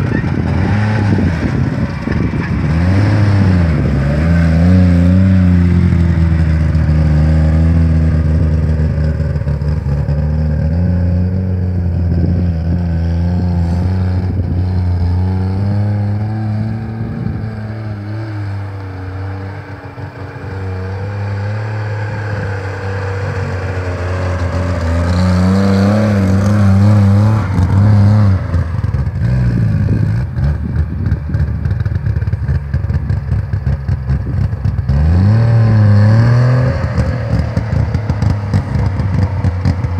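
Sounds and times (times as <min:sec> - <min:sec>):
two-stroke engine under load: 0:00.0 - 0:39.9
vehicle body rattling and knocking: 0:28.6 - 0:35.1.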